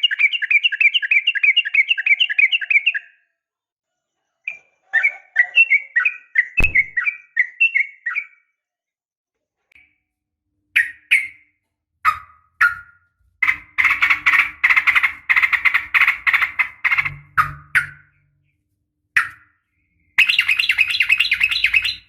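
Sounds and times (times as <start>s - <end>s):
bulbul chirping and bubbling: 6.6s - 7.2s.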